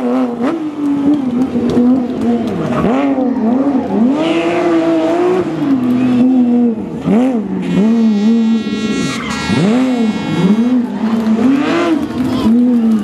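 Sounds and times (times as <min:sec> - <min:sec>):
rally car engine revving hard: 0:00.0 - 0:13.0
high whine: 0:07.8 - 0:10.8.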